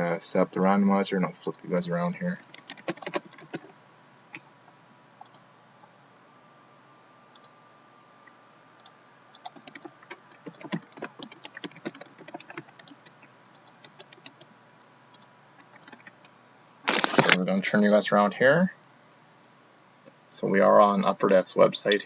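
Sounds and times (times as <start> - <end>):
typing on computer keyboard: 2.4 - 3.7, 8.8 - 14.5, 15.2 - 16.2.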